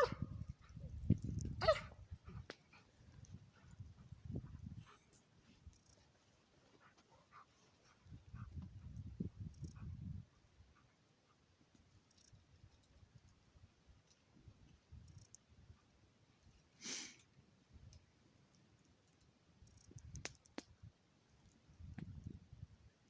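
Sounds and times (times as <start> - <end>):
faint sharp clicks: 17.9 - 20.8.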